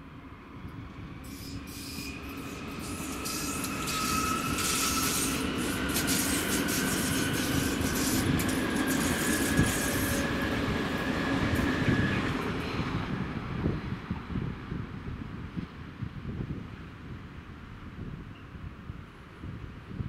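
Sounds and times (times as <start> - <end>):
train wheels rumbling on rail: 0.0 - 19.8
high hissing: 1.3 - 10.4.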